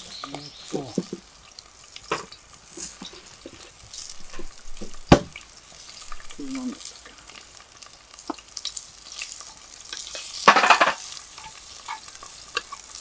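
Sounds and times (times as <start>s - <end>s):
garlic and onion sizzling: 0.0s - 13.0s
sharp knock: 5.1s - 5.3s.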